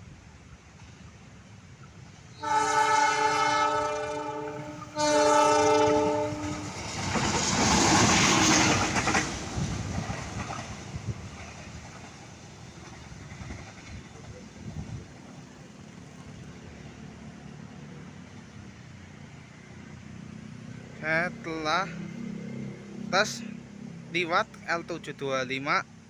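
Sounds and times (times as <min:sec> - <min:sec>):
train rushing past: 0:00.0 - 0:26.0
locomotive horn blasts: 0:02.4 - 0:06.7.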